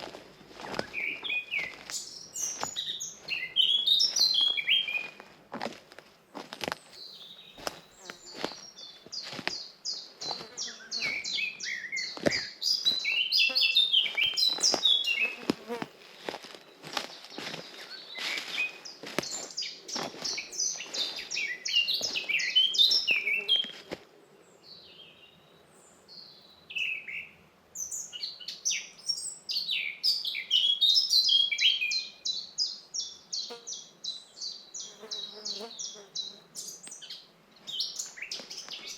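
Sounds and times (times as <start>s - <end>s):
birds chirping: 0.0s - 5.3s, 6.3s - 38.9s
footsteps crunching on path: 0.0s - 24.1s, 37.7s - 38.9s.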